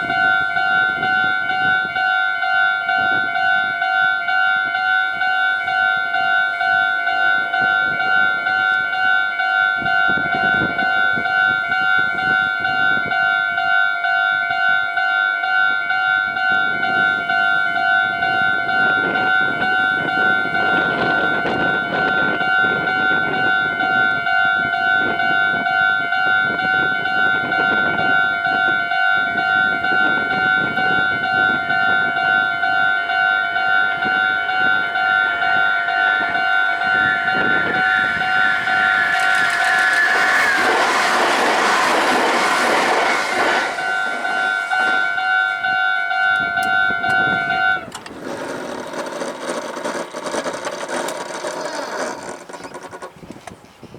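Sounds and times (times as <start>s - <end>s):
level-crossing alarm bell ringing: 0.0s - 53.0s
train passing: 0.0s - 53.6s.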